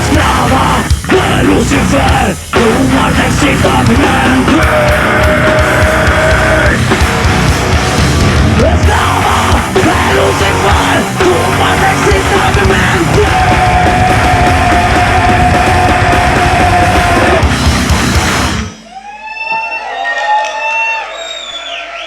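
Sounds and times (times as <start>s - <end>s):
metal band playing loudly: 0.0s - 19.1s.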